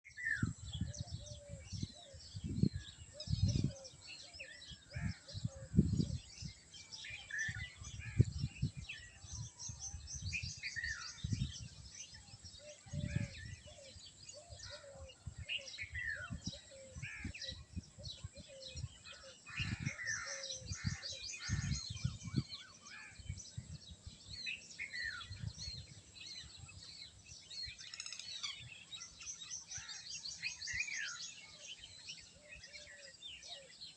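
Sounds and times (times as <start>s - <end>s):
small birds chirping and trilling: 0.0s - 33.9s.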